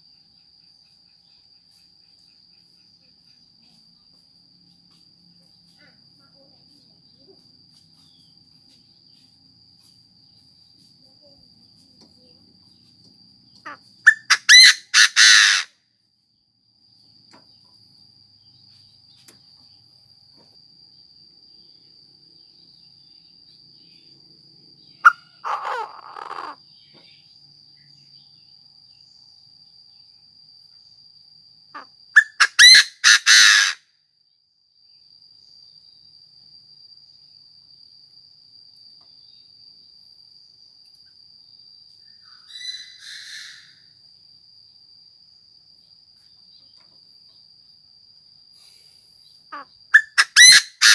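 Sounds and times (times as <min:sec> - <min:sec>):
high-pitched insect drone: 0:00.0 - 0:50.9
francolin calling harshly: 0:13.6 - 0:15.7, 0:24.9 - 0:27.2, 0:31.8 - 0:33.8, 0:42.1 - 0:43.9, 0:49.5 - 0:50.9.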